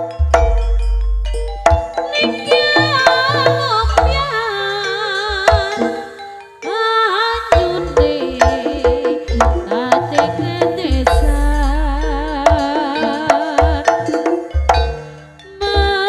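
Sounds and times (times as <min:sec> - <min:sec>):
long low tone: 0:00.0 - 0:04.4, 0:10.4 - 0:13.4
hand drum strokes: 0:00.0 - 0:06.2, 0:07.5 - 0:16.0
person singing with vibrato: 0:02.0 - 0:14.5, 0:15.5 - 0:16.0.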